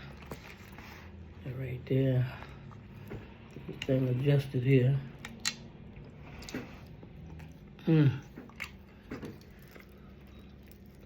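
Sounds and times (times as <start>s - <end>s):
chewing and mouth clicks: 5.2s - 11.0s.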